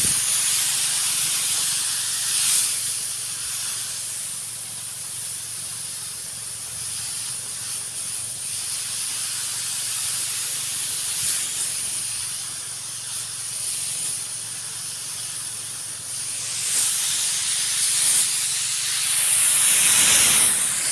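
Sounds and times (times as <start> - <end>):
power sprayer hissing: 0.0 - 20.9
sprayer motor humming: 14.2 - 20.9.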